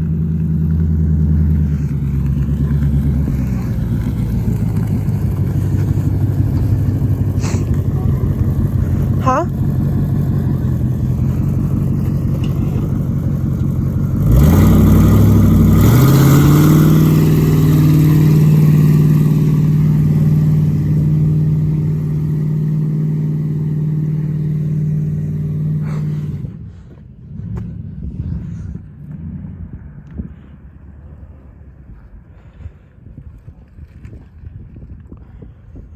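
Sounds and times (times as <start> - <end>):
vehicle engine revving: 0.0 - 32.6.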